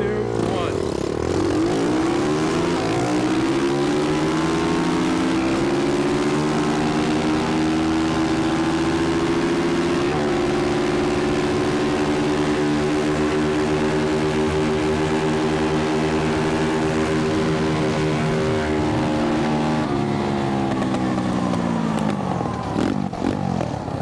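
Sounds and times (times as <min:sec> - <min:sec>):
small motorbike engine accelerating: 0:00.0 - 0:24.0.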